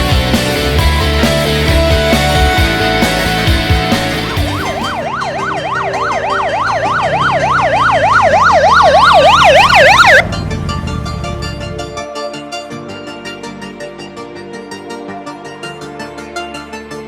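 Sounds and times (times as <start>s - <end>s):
background music: 0.0s - 17.0s
siren yelping: 4.1s - 12.0s.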